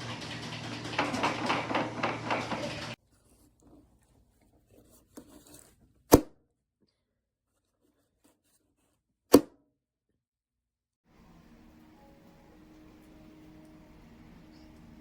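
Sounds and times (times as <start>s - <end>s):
quick irregular tapping and clattering: 0.0s - 3.0s
low steady hum: 11.1s - 15.0s.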